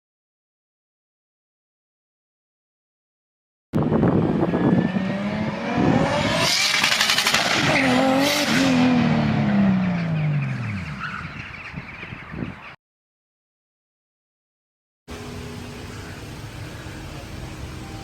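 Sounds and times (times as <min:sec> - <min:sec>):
car engine revving: 0:03.8 - 0:11.6.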